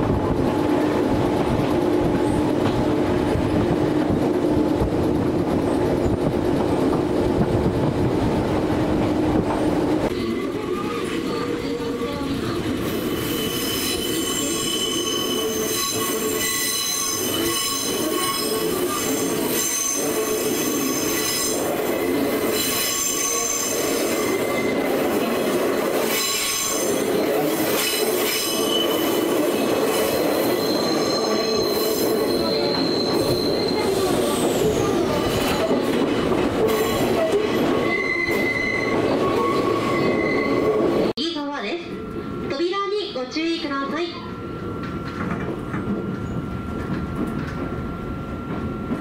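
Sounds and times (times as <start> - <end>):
electric train rumbling on rails: 0.0 - 49.0
high-pitched wheel squeal: 12.9 - 21.6, 26.1 - 29.3, 29.9 - 35.7, 36.7 - 40.8.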